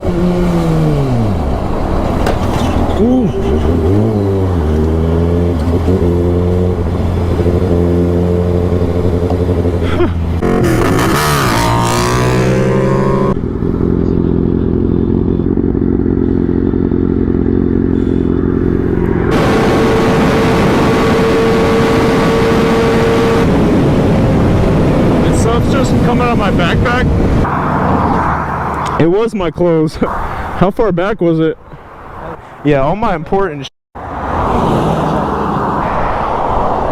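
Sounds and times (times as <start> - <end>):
motorcycle engine revving: 0.0 - 29.0
steady rushing noise: 18.4 - 29.1, 35.0 - 36.9.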